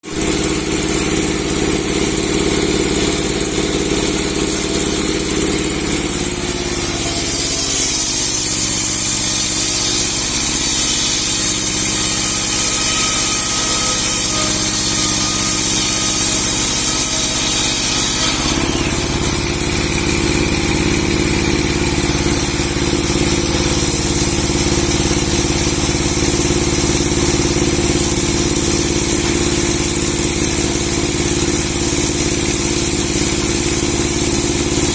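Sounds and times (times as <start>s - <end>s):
log-sawing machine running: 0.0s - 34.9s
saw blade hissing through log: 2.7s - 26.2s.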